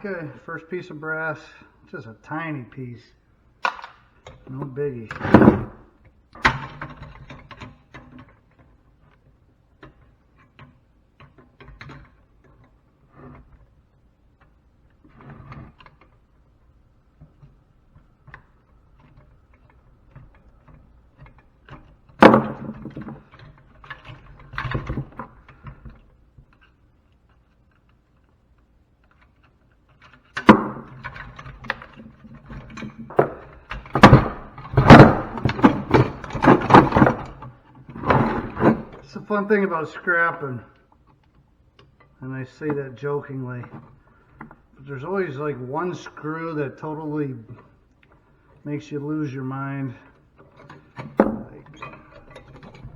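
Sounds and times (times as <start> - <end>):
loud knocks: 5.2 - 5.9, 33.1 - 37.4
hand tools on metal parts: 29.0 - 52.9.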